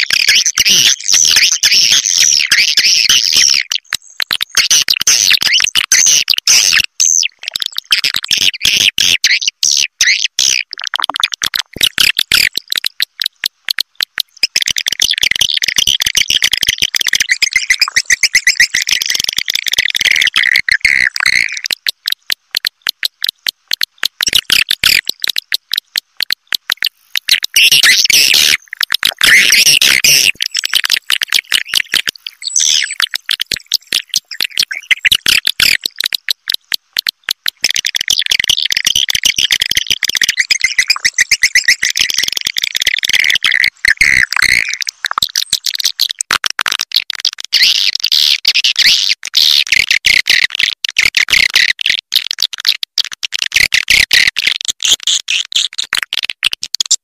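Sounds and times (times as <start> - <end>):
swiftlet call twittering: 14.3 - 36.7, 37.6 - 45.7.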